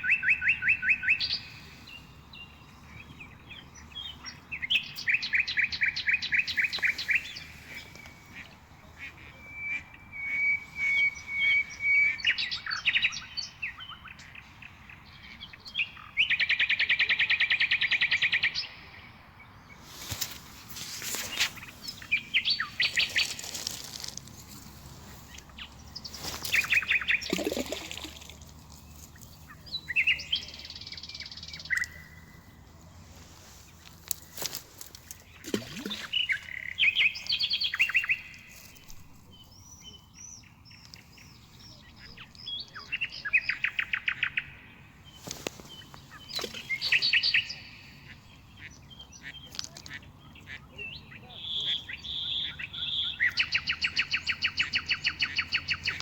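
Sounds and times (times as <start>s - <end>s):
songbird chattering chirps: 19.8s - 32.5s, 35.2s - 56.0s.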